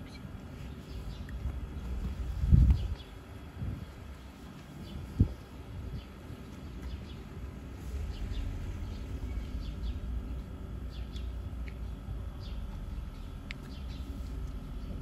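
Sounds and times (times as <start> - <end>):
small birds chirping: 0.0 - 15.0
low rumble: 7.4 - 15.0.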